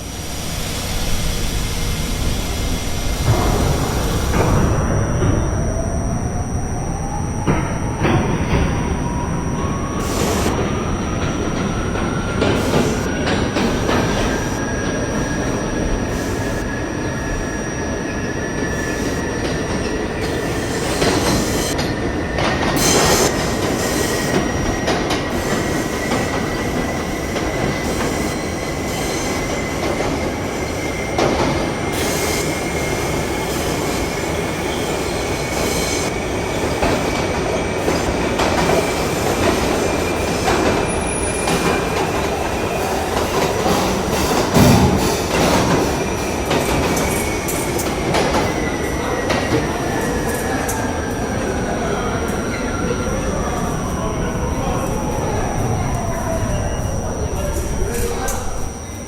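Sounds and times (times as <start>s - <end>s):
thin rising whine: 0.0s - 21.8s, 53.4s - 59.0s
subway train rumble and rail noise: 0.0s - 59.0s.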